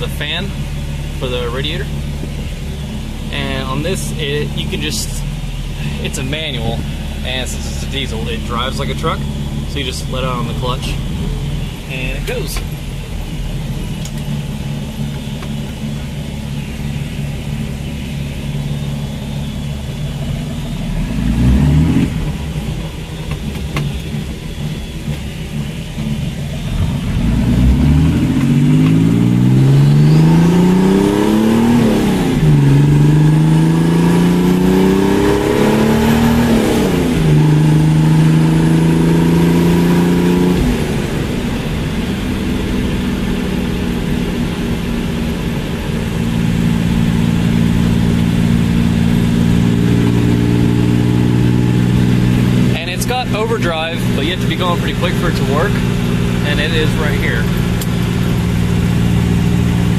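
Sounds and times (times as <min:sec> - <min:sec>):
diesel car engine accelerating: 0:00.0 - 0:59.9.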